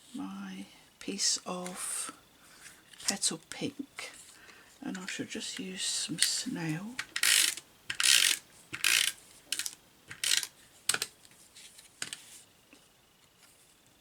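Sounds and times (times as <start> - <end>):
tape runner ratcheting rasp: 7.0 - 11.1.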